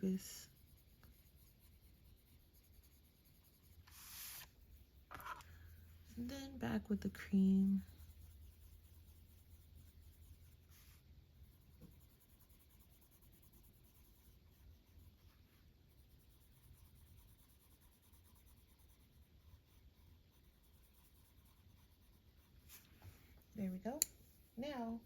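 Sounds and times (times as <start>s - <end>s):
pencil scratching on paper: 0.0s - 22.9s.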